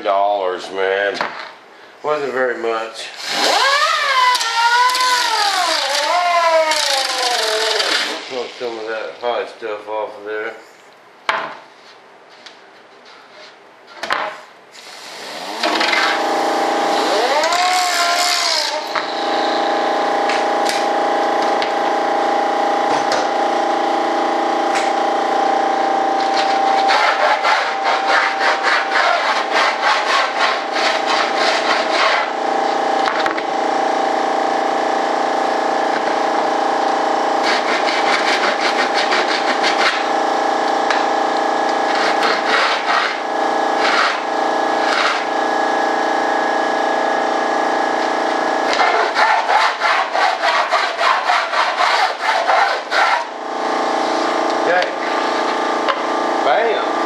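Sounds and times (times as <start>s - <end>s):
small power tool grinding: 3.2s - 8.9s, 15.3s - 23.2s, 23.8s - 46.5s, 48.3s - 56.7s
rapid rasping strokes: 26.3s - 32.3s, 37.4s - 40.0s, 48.7s - 53.3s.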